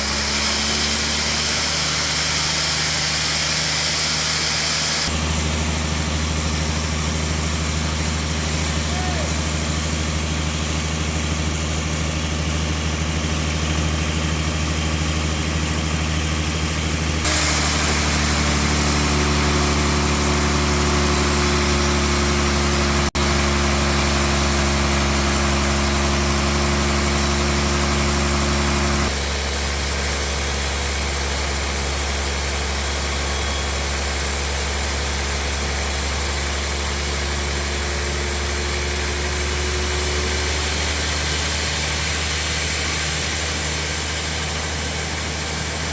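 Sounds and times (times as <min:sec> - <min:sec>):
bandsaw machinery humming: 0:00.0 - 0:45.9.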